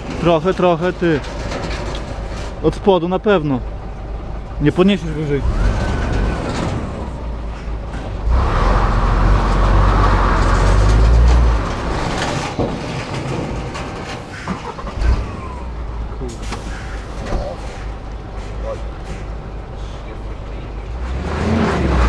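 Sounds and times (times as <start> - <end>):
diesel truck engine rumbling: 0.0 - 22.0.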